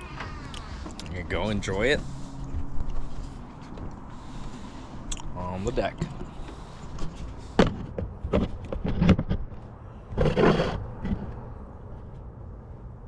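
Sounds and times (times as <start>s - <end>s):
knocks and thumps: 6.0s - 11.4s.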